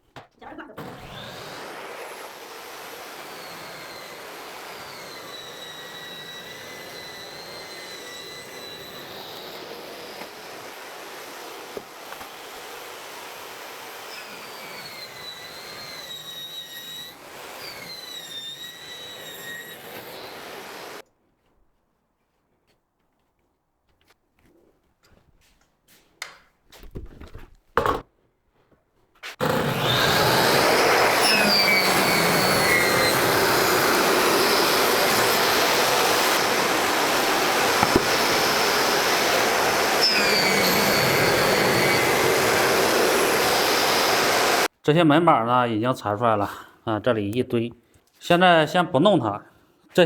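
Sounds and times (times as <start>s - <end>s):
electric saw cutting wood: 0.7s - 21.0s, 29.4s - 44.7s.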